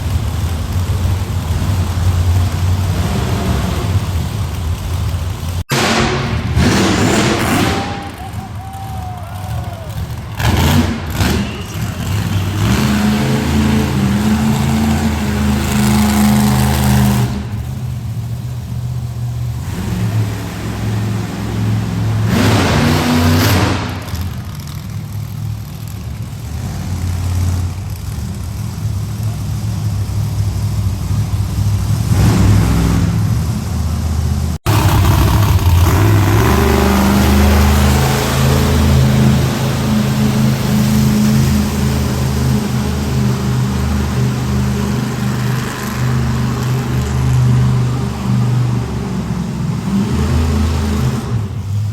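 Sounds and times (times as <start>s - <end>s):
truck engine revving: 0.0s - 51.9s.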